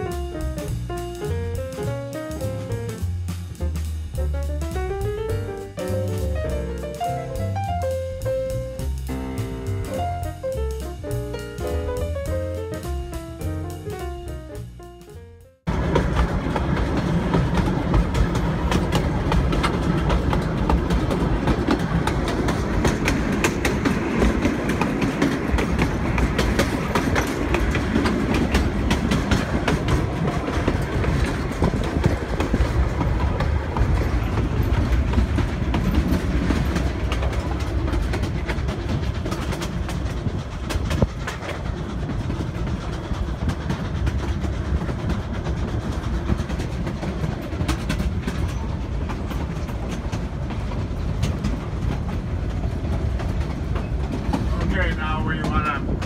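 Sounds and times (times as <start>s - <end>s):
train wheels clattering over rail joints: 15.7s - 56.0s.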